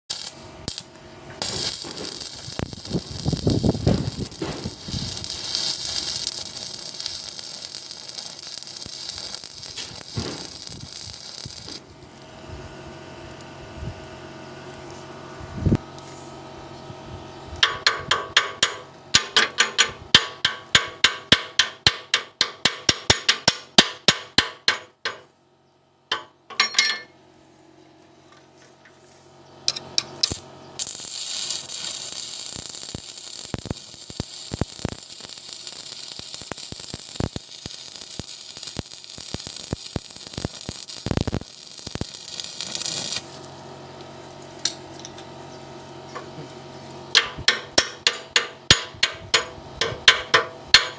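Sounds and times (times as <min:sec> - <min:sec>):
welding arc crackling hiss: 0:00.0 - 0:12.7, 0:29.7 - 0:45.0
hammer strikes on metal: 0:17.6 - 0:25.3, 0:26.1 - 0:27.1, 0:47.1 - 0:50.9.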